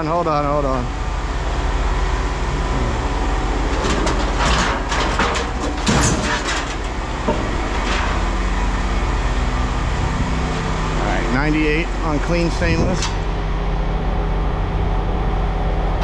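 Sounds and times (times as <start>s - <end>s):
low machine hum: 0.0s - 16.0s
scrap metal clanking: 3.7s - 8.8s.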